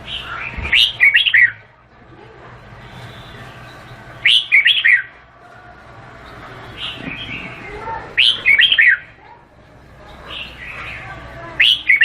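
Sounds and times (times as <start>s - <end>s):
bird singing whistled notes: 0.1s - 1.6s, 2.9s - 5.1s, 8.2s - 9.0s.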